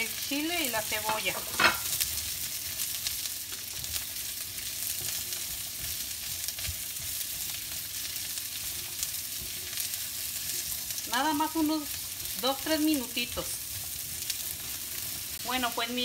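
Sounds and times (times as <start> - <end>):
vegetables sizzling in oil: 0.0 - 16.0
spatula scraping a pan: 4.8 - 11.0.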